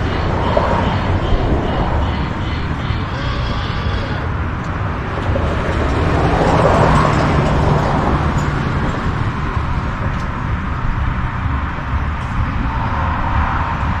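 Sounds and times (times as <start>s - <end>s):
electric crane motor humming: 0.0s - 6.0s.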